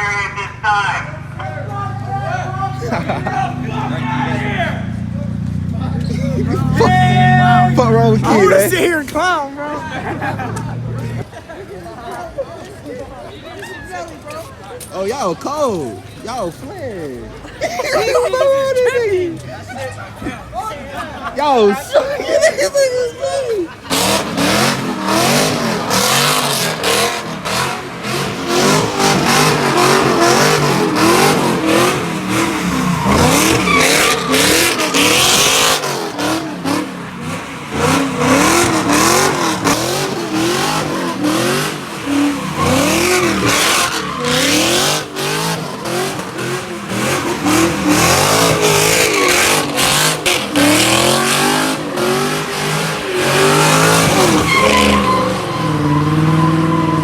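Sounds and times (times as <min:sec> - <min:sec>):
tires squealing and skidding: 0:00.0 - 0:11.3, 0:13.4 - 0:57.0
car engine revving hard: 0:01.4 - 0:11.3, 0:23.7 - 0:57.0.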